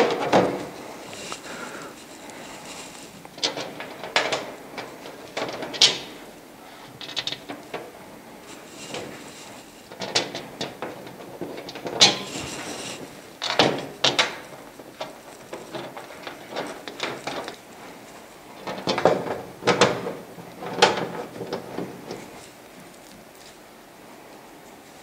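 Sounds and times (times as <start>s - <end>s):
plastic panel knocking and clattering: 0.0s - 0.8s, 13.4s - 14.5s, 18.6s - 22.2s.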